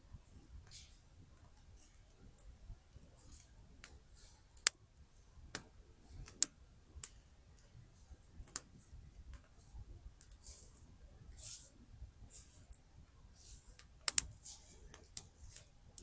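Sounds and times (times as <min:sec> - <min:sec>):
campfire crackling and popping: 0:01.3 - 0:09.6, 0:13.6 - 0:16.0.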